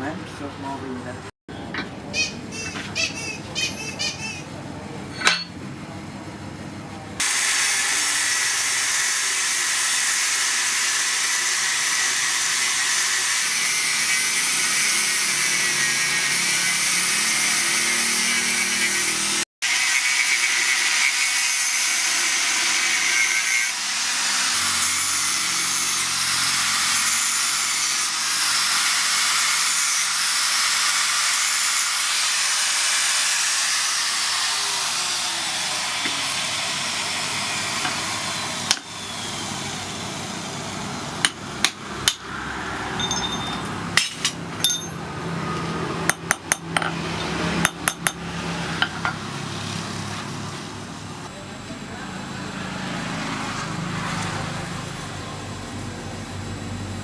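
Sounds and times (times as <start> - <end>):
power tool grinding metal: 7.2 - 50.9.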